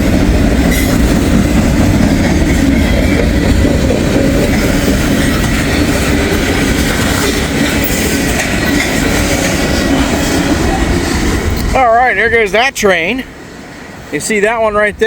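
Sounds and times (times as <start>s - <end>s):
wheels squealing on rails: 0.0s - 14.9s
freight train rumbling past: 0.0s - 15.0s.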